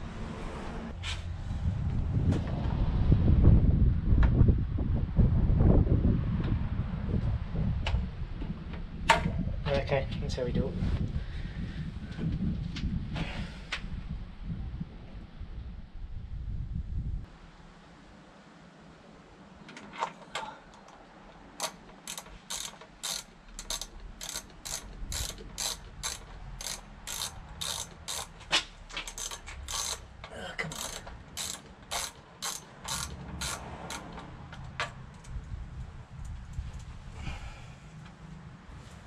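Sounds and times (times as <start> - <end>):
hand ratchet clicking: 21.6 - 35.3.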